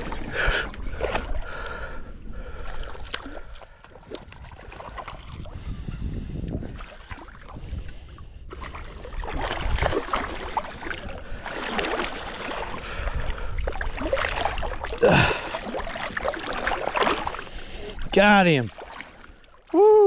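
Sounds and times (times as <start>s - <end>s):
water sloshing and splashing: 0.0s - 19.8s.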